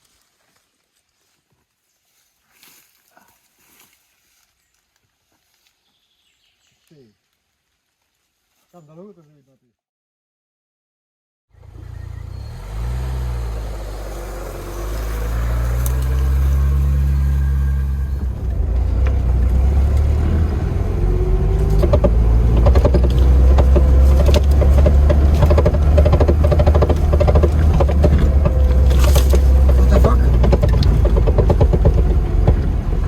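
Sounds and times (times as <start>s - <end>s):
car engine low drone: 11.6s - 33.0s
rattles and knocks: 14.6s - 33.0s.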